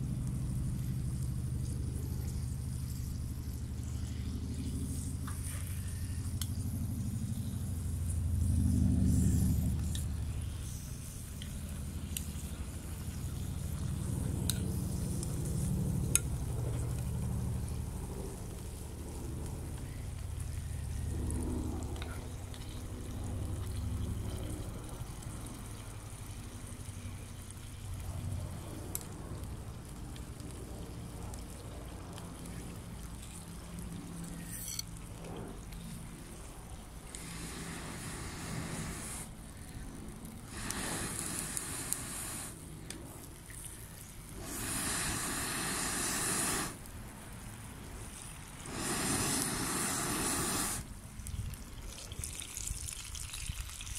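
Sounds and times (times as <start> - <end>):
water pouring and splashing: 50.8 - 53.9.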